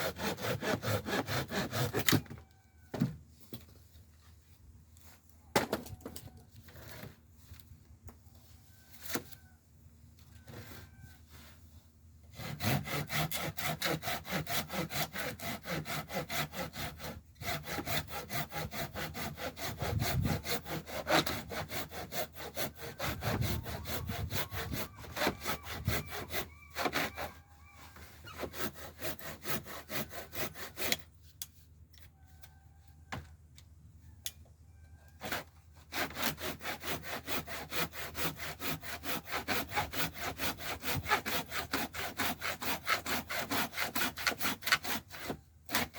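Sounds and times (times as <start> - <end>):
handsaw cutting wood: 0.0 - 2.2, 12.3 - 27.4, 28.2 - 31.1, 35.2 - 45.9.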